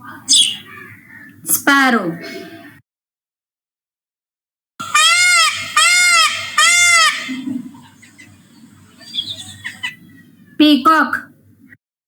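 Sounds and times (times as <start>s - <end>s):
peacock calling: 0.0s - 1.4s, 4.8s - 10.3s.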